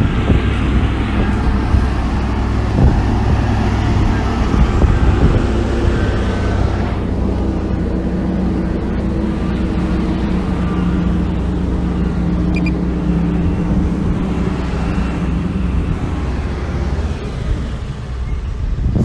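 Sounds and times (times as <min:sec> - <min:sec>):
diesel machinery engine rumbling: 0:00.0 - 0:19.0.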